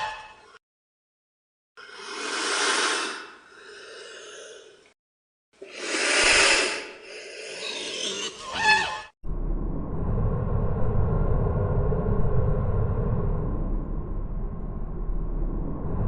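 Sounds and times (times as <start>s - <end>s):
animal breathing out hard: 1.8s - 4.9s, 5.6s - 8.1s.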